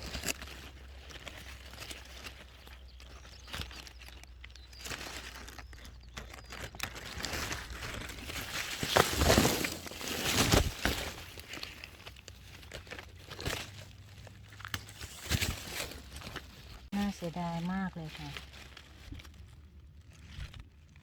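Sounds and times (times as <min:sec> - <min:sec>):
plants rustling and crinkling: 0:00.0 - 0:21.0.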